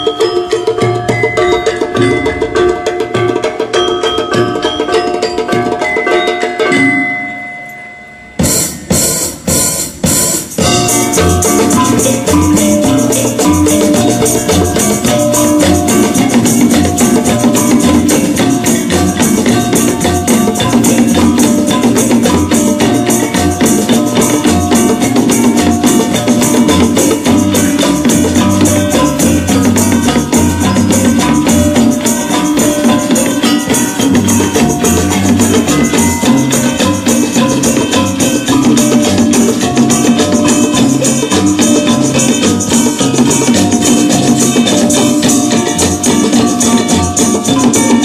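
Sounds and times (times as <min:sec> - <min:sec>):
fast percussion beat: 0:00.0 - 0:48.0
gamelan fusion music with band: 0:00.0 - 0:48.0
moving bass line: 0:10.6 - 0:46.6.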